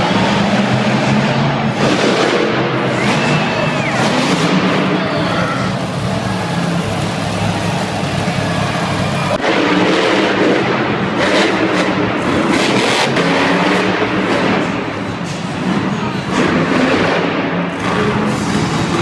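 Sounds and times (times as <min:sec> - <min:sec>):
truck engine revving: 0:00.0 - 0:19.0.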